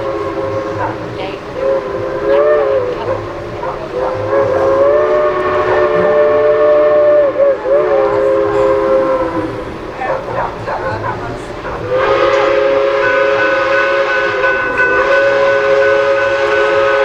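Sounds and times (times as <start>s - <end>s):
train horn blasts: 0.0s - 17.0s.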